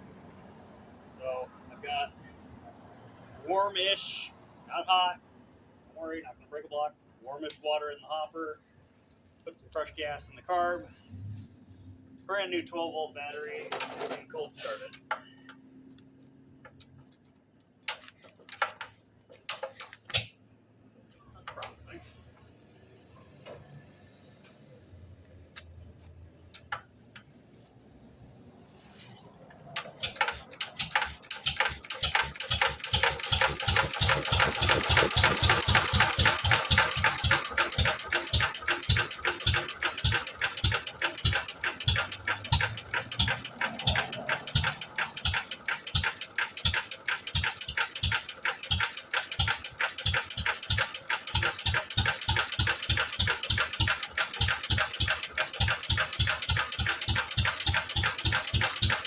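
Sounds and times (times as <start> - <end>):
stationary engine knocking: 29.8 - 59.0.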